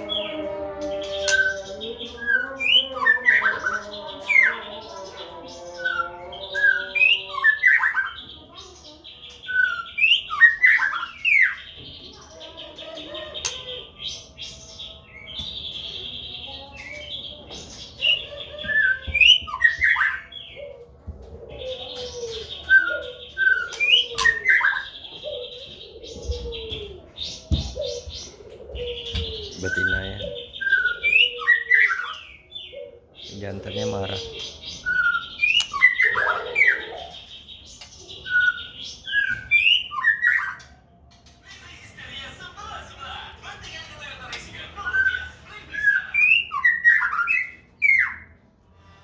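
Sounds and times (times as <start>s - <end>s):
low cooing: 20.5s - 33.1s, 35.8s - 37.2s
bird whistling calls: 29.0s - 32.4s, 34.2s - 37.2s.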